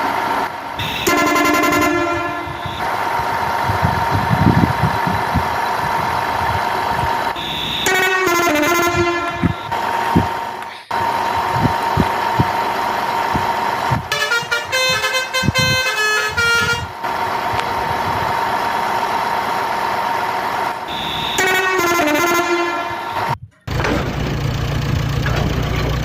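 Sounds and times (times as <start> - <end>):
steady high whine: 0.0 - 14.8
electronic horn-like tune: 0.8 - 3.0, 7.4 - 10.3, 14.1 - 17.0, 20.9 - 23.4
knocks: 23.6 - 24.4.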